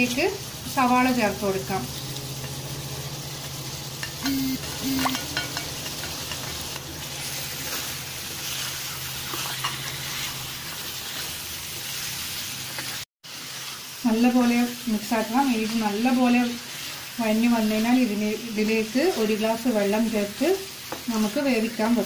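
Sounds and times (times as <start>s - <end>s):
liver sizzling in a pan: 0.0s - 22.0s
spatula scraping a pan: 4.8s - 13.9s.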